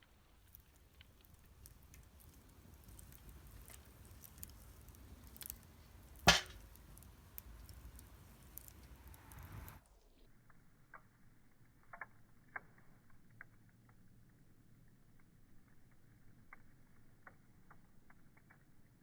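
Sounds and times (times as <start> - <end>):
wood crackling and popping: 0.0 - 9.8.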